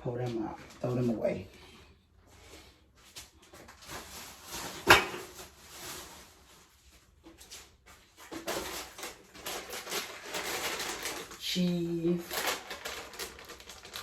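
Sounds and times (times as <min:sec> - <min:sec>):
garbage bag rustling: 0:02.4 - 0:14.0
containers rustling and clattering: 0:03.2 - 0:14.0.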